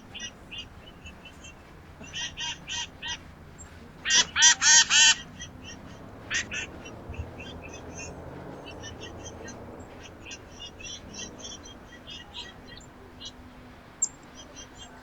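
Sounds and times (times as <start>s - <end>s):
bird nasal quacking calls: 2.0s - 3.3s, 4.0s - 12.6s.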